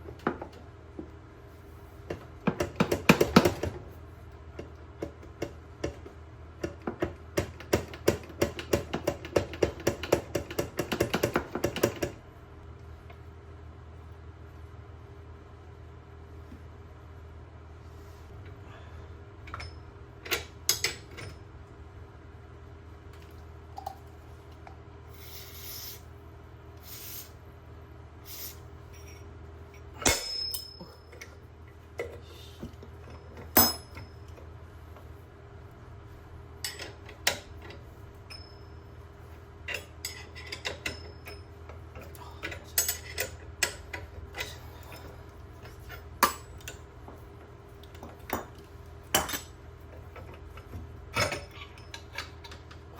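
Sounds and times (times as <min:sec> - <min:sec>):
steady low hum: 0:00.0 - 0:52.9
short hissing bursts: 0:25.1 - 0:26.1, 0:26.8 - 0:27.4, 0:28.2 - 0:28.6
metal tools clinking: 0:29.9 - 0:31.4.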